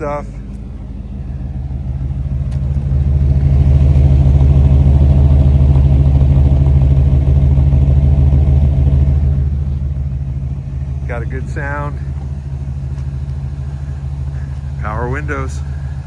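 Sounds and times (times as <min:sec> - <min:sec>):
pickup truck engine idling: 0:00.0 - 0:16.0.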